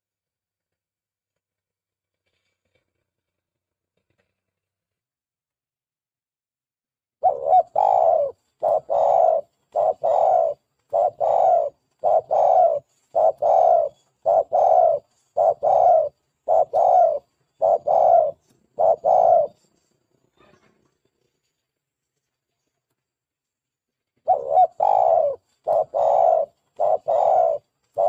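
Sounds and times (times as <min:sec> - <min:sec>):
dove cooing: 0:07.2 - 0:19.7, 0:24.3 - 0:28.0.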